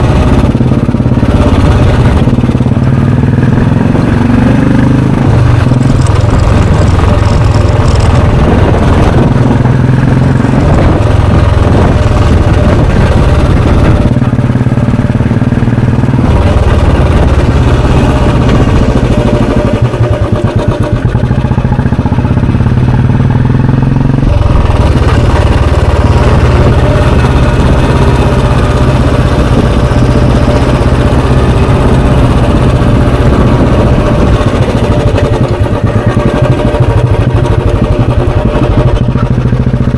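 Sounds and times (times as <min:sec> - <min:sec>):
motorcycle engine thumping: 0:00.0 - 0:39.9.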